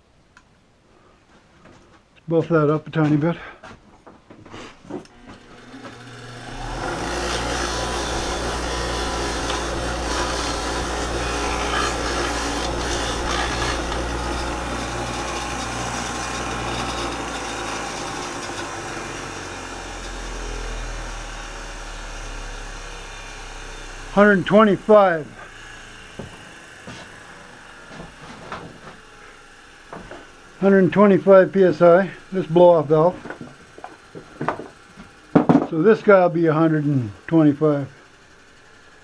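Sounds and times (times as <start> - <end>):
electric buffing wheel running: 5.0 - 39.0
part rubbing on buffing wheel: 5.2 - 18.2.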